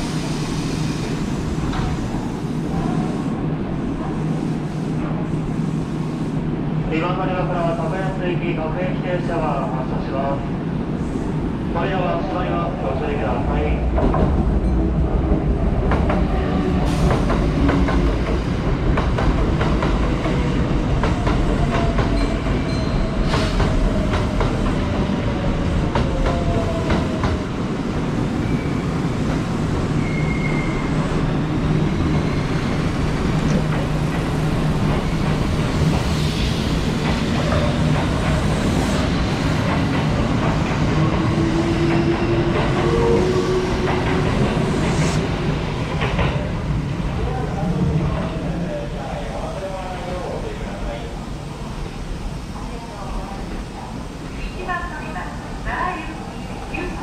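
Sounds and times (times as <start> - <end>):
train wheels rumbling on rail: 0.0 - 57.0
rail clatter: 33.0 - 45.0.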